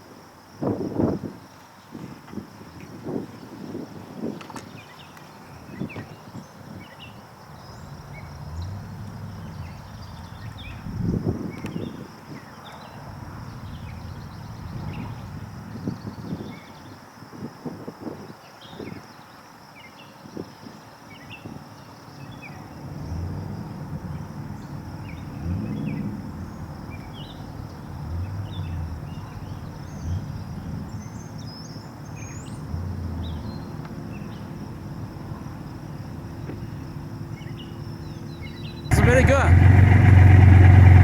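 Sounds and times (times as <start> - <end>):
car engines rumbling: 5.4 - 11.9, 12.7 - 16.1, 22.3 - 41.0.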